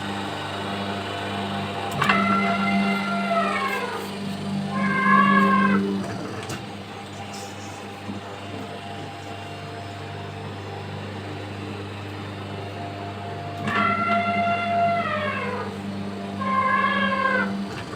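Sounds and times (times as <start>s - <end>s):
ride machine humming: 0.0s - 17.9s
high meow-like wail: 4.7s - 6.0s, 13.6s - 15.7s, 16.4s - 17.6s.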